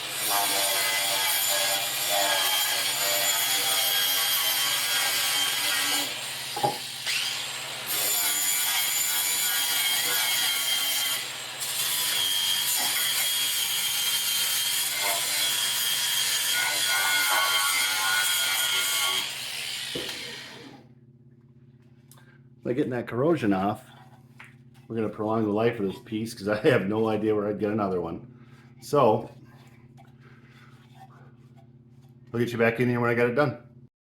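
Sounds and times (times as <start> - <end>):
power tool scraping rust off metal: 0.0 - 20.8.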